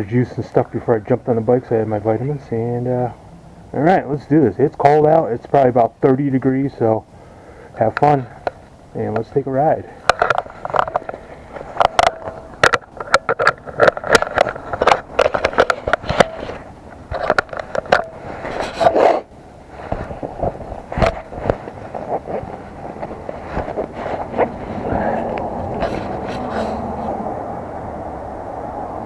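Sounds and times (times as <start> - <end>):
rough rumble: 8.0 - 29.0
camera knocks and scrapes: 10.1 - 27.2.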